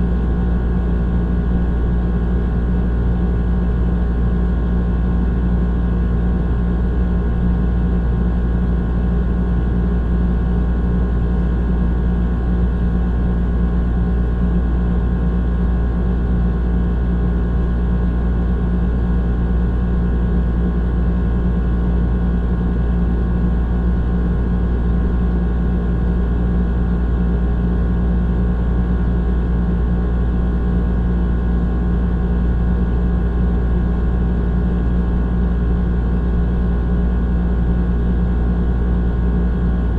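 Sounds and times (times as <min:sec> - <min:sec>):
air conditioner running: 0:00.0 - 0:39.9.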